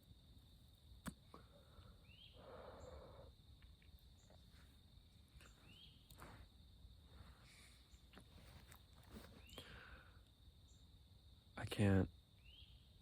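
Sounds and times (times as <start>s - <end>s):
frogs trilling: 1.4s - 3.4s.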